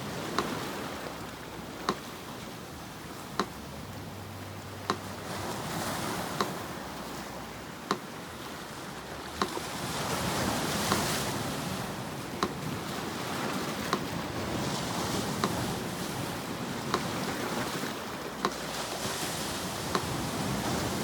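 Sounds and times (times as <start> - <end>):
sea surf washing: 0.0 - 21.0
metronome ticking: 0.2 - 14.2, 18.3 - 18.8, 19.8 - 20.3.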